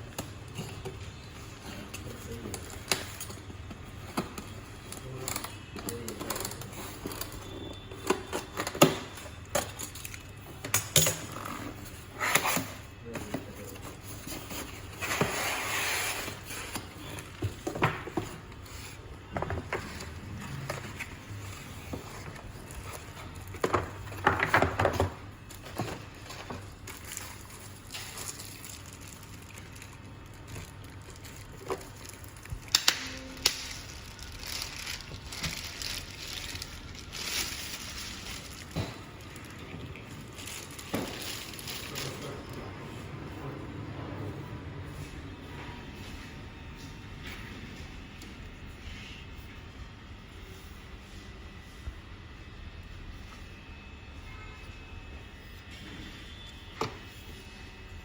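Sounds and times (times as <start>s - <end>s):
packaging rustling: 11.7s - 42.7s
packaging tearing: 26.8s - 39.6s.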